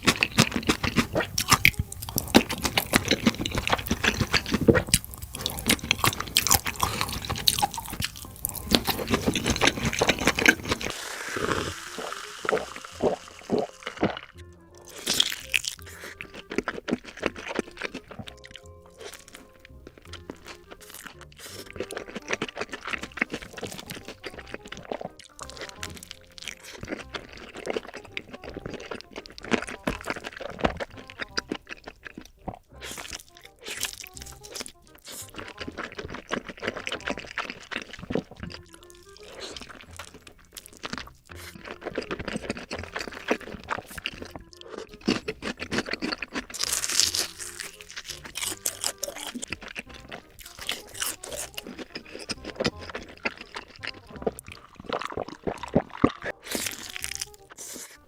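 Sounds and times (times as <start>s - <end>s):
background music: 0.0s - 58.0s
sausages bitten and chewed: 0.0s - 58.0s.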